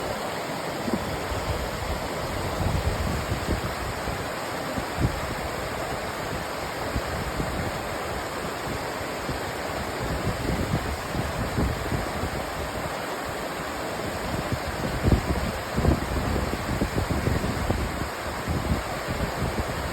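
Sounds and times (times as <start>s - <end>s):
river water rushing: 0.0s - 19.9s.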